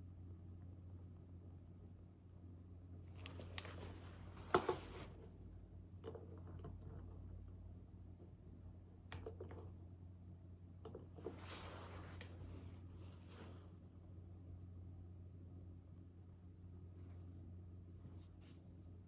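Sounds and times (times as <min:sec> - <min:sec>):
steady low hum: 0:00.0 - 0:19.0
handling rustle: 0:11.2 - 0:13.7.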